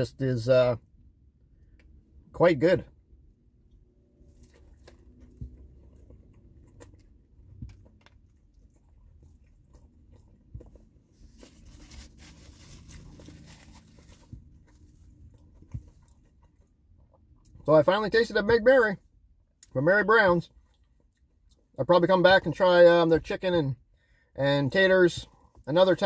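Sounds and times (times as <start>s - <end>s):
person chewing crunchy food: 3.7s - 17.6s.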